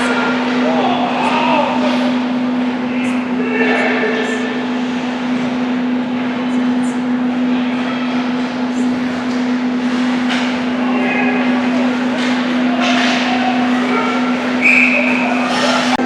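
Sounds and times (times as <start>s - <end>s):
distant voices: 0.0s - 16.0s
steady low hum: 0.0s - 16.0s.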